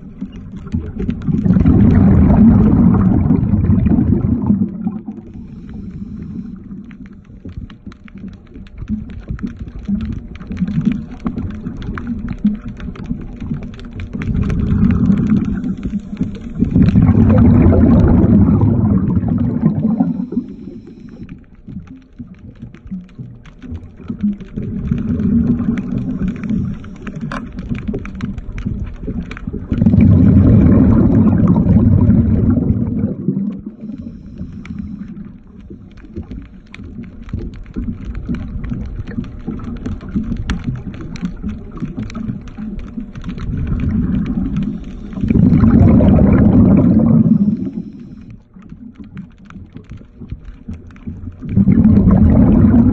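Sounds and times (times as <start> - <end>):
underwater regulator bubbles: 0.0 - 52.9
faint clicks and taps: 4.6 - 18.4, 19.0 - 30.0, 31.2 - 52.9.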